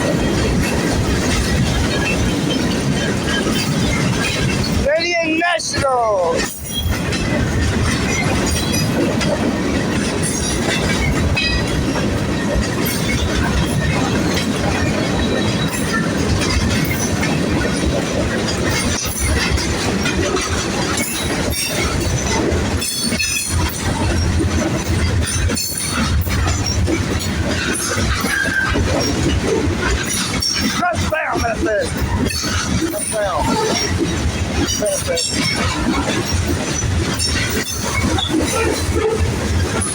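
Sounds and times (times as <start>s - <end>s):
train wheels rumbling on rail: 0.0s - 39.9s
wheels clacking over rail joints: 0.0s - 39.9s
high wheel squeal: 27.6s - 29.3s, 34.6s - 39.2s.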